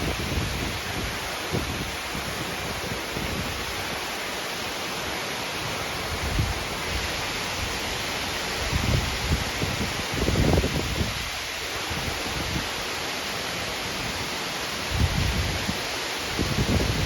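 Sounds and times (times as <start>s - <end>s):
wind buffeting microphone: 0.0s - 3.9s, 8.6s - 12.7s, 14.9s - 17.0s
heavy rain pouring: 0.0s - 17.0s.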